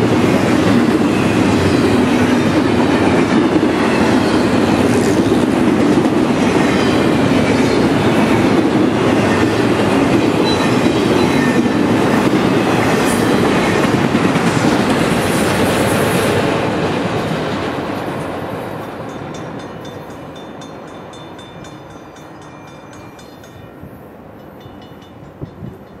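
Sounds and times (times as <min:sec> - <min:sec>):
railroad crossing bell dinging: 0:00.5 - 0:05.4, 0:06.3 - 0:13.9, 0:18.8 - 0:26.0.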